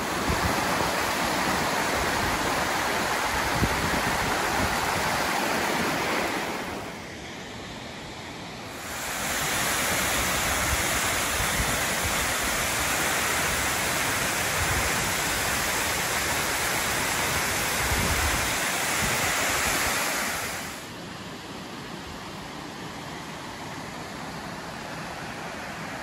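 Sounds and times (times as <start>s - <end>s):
wind rumbling on microphone: 0.0s - 7.0s, 17.1s - 20.6s
waterfall roaring: 0.0s - 26.0s.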